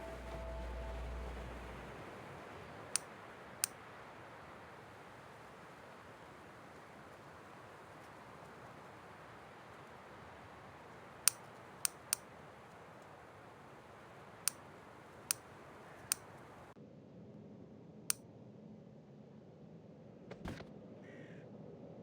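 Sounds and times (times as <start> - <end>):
faint steady hiss: 0.0 - 16.8
sharp clicks: 11.3 - 12.3.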